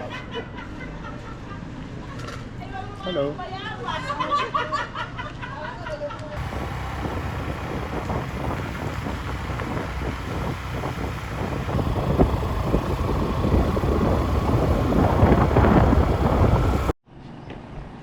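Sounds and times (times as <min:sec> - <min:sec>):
motorbike engine running: 0:06.4 - 0:17.0
wind buffeting microphone: 0:06.4 - 0:17.0.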